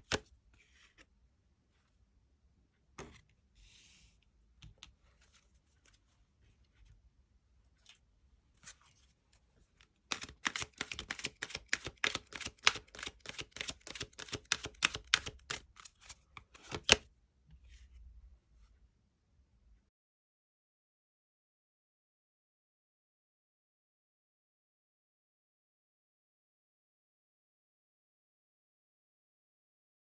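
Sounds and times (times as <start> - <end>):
cards tapping and sliding: 10.1 - 17.0
deck of cards shuffled: 10.1 - 17.0.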